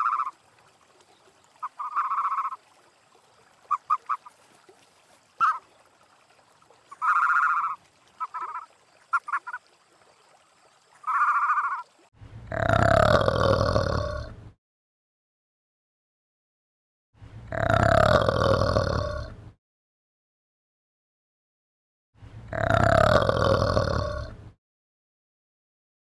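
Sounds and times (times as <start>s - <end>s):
waterfowl honking: 0.0s - 0.4s, 1.6s - 2.6s, 3.6s - 5.7s, 6.9s - 9.7s, 11.0s - 12.0s
deep animal grunt: 12.4s - 14.4s, 17.5s - 19.4s, 22.4s - 24.5s.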